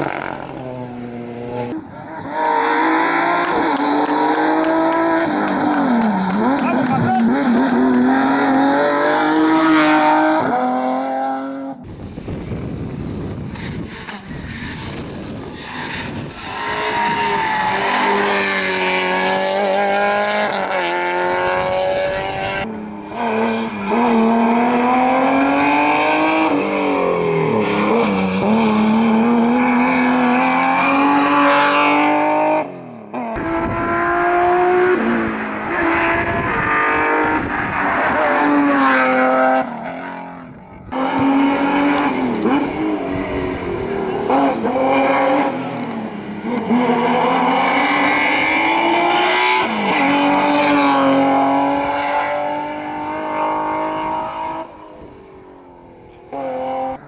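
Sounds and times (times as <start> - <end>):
rally car engines revving hard: 0.0 - 11.9, 12.6 - 57.0
tyres squealing: 2.1 - 8.4.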